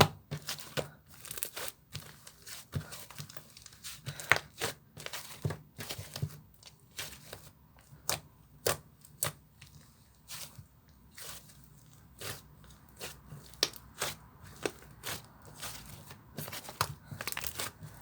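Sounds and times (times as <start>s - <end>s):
slime popping and crackling: 13.0s - 18.0s.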